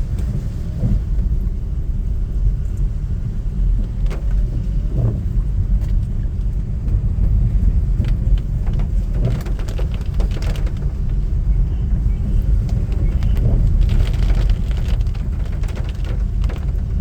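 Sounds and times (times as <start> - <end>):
vehicle rumble on wet road: 0.0 - 17.0.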